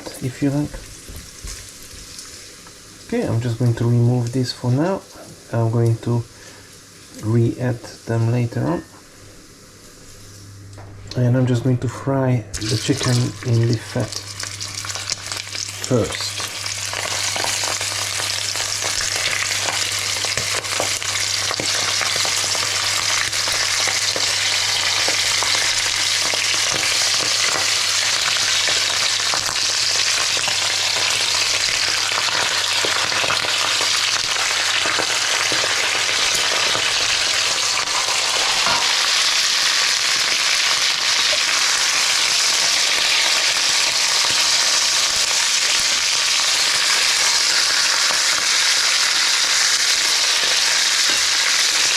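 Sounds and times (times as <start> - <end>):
chicken sizzling in fat: 0.0 - 7.5, 12.6 - 51.9
fat crackling and popping: 12.6 - 51.9.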